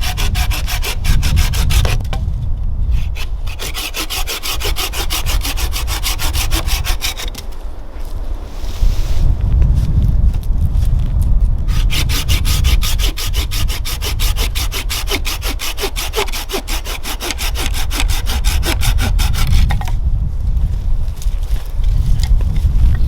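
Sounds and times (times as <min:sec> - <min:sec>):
hand saw cutting wood: 0:00.0 - 0:02.2, 0:02.9 - 0:07.5, 0:11.7 - 0:20.0
wind rumble on microphone: 0:00.0 - 0:23.0.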